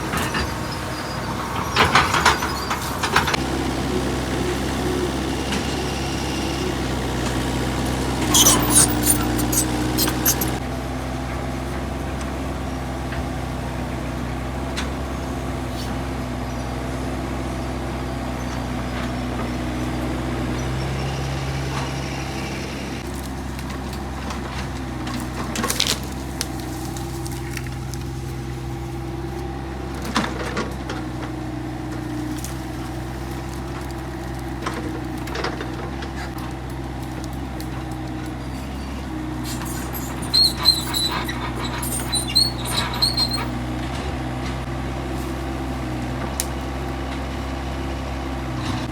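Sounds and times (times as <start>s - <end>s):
excavator diesel engine running: 0.0s - 48.9s
sharp metallic clanks: 7.8s - 10.6s.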